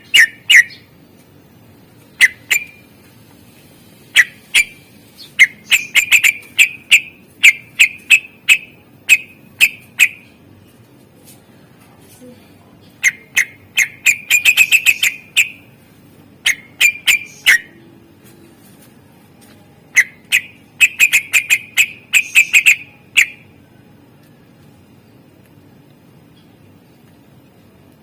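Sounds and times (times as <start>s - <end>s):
bird whistling song: 0.0s - 0.9s, 2.1s - 2.9s, 4.1s - 10.4s, 13.0s - 15.7s, 16.4s - 17.8s, 19.9s - 23.5s.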